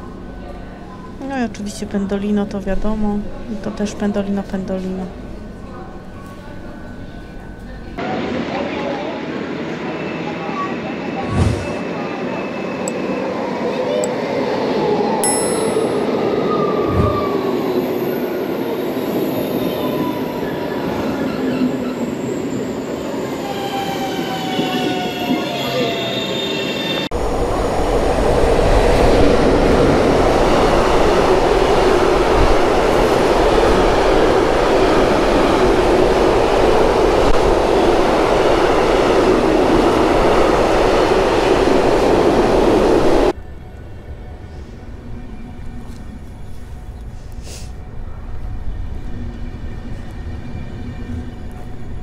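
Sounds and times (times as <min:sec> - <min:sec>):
freight train rumbling on rails: 0:00.0 - 0:52.0
electric train whine passing: 0:11.8 - 0:47.2.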